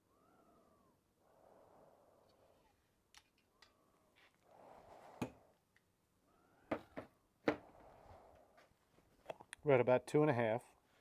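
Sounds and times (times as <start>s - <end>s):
faint breathing: 0.1s - 2.9s, 3.6s - 6.7s, 7.6s - 9.1s.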